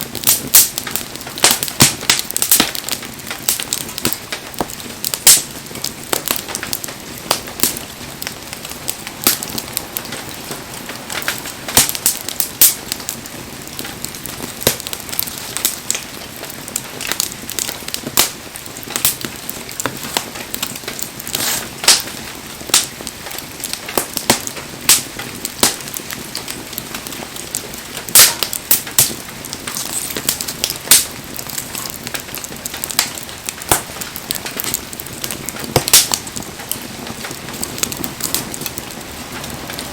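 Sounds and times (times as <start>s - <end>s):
wood fire crackling: 0.0s - 39.9s
sharp pops from firewood: 0.2s - 7.8s, 9.2s - 10.2s, 14.6s - 16.0s, 23.9s - 26.6s, 28.1s - 36.3s.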